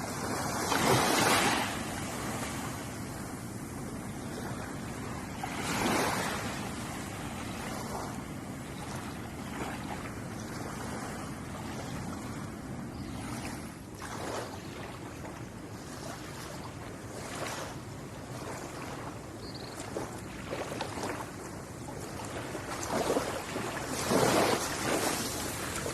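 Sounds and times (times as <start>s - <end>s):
steady hiss of surf: 0.0s - 12.9s, 21.2s - 25.9s
ocean waves washing onto shore: 0.0s - 25.9s.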